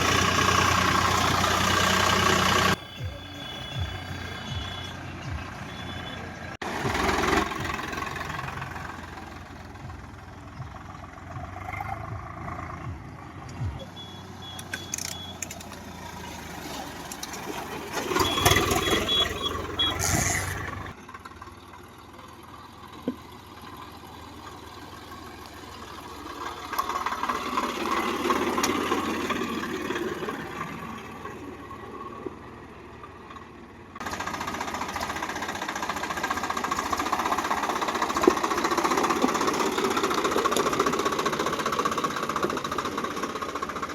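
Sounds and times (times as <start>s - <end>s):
tractor engine running: 0.0s - 43.9s
high beeps: 2.8s - 6.3s, 13.6s - 15.4s, 18.2s - 20.2s.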